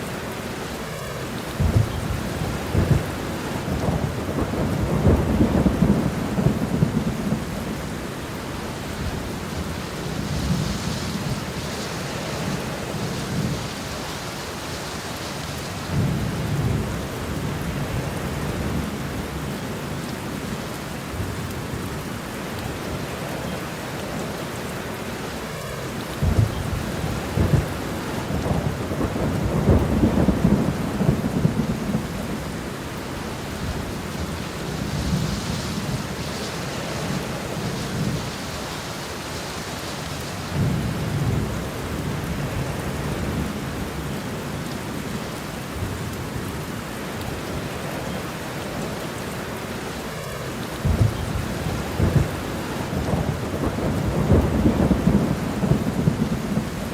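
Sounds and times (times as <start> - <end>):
steady rain: 0.0 - 56.9
rolling thunder: 1.5 - 19.4, 26.1 - 39.6, 40.2 - 44.4, 50.2 - 56.9.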